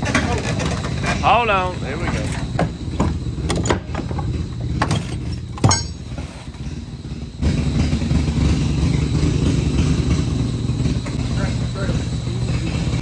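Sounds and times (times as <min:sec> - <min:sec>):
vehicle engine rumbling: 0:00.0 - 0:13.0
sharp knocks: 0:02.6 - 0:06.1.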